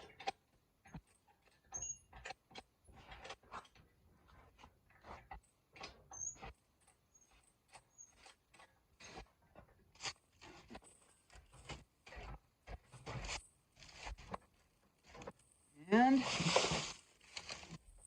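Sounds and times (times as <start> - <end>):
faint clicks and knocks: 0.0 - 15.6
short high squeaks: 1.7 - 2.2, 6.1 - 6.5, 7.1 - 8.4.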